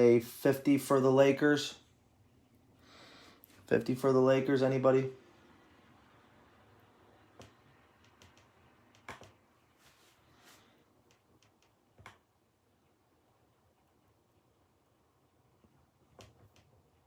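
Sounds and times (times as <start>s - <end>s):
faint clicks and taps: 7.3s - 9.5s, 11.0s - 12.3s, 15.6s - 17.0s.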